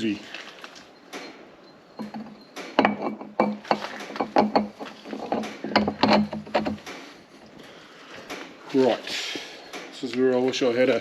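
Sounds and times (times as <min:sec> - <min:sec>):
steady metallic ring: 0:01.0 - 0:07.4.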